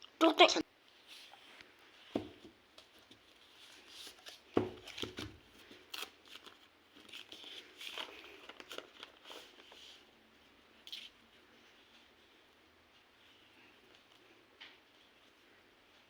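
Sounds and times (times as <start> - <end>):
packaging taps and crinkling: 4.1 - 9.8.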